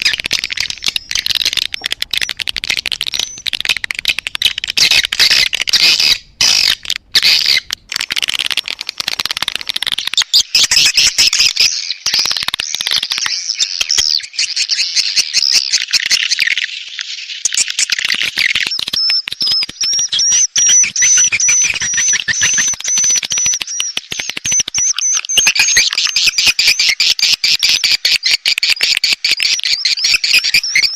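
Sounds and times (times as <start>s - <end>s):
swiftlet chirping and clicking: 0.0s - 11.5s, 18.4s - 26.7s.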